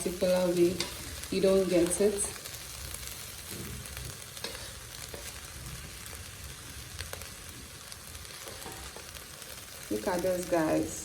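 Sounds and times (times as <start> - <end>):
food sizzling in a saucepan: 0.0 - 11.0
stirring scrapes and clicks: 4.4 - 5.3.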